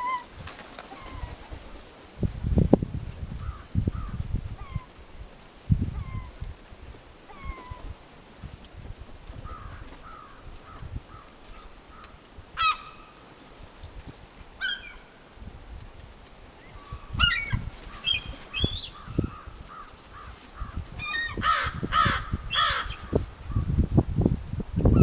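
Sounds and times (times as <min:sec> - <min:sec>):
gulls calling: 0:14.6 - 0:15.1.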